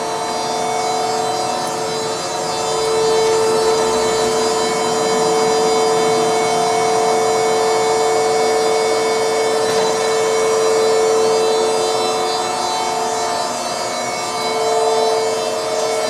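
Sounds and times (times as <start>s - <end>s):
surface grinder whining: 0.0s - 16.0s.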